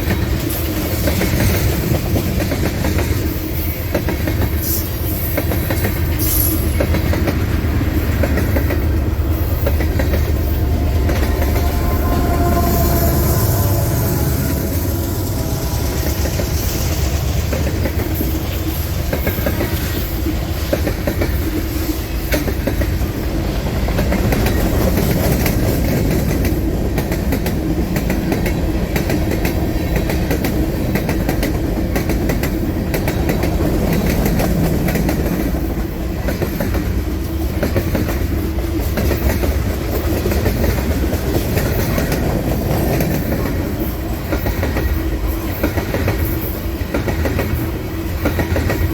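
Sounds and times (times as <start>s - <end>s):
wheels clacking over rail joints: 0.0s - 23.2s
train wheels rumbling on rails: 0.0s - 48.9s.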